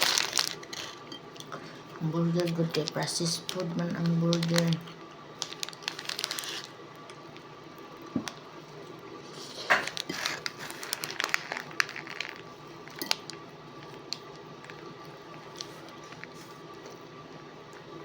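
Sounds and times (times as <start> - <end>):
food wrapper crinkling: 0.0 - 1.1, 2.4 - 6.8, 9.4 - 13.4
faint steady hum: 0.0 - 18.0.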